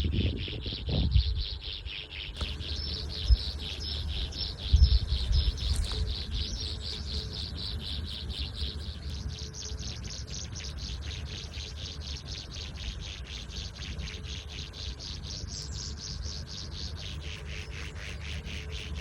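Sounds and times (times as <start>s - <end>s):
rhythmic insect chirping: 0.1s - 19.0s
low rumbling thumps: 2.4s - 6.8s.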